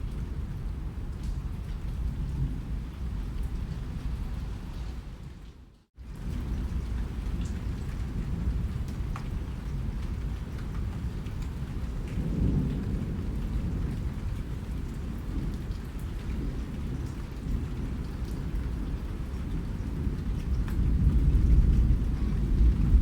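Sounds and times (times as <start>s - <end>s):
rain falling: 0.0s - 23.0s
heavy low rumble: 21.5s - 23.0s.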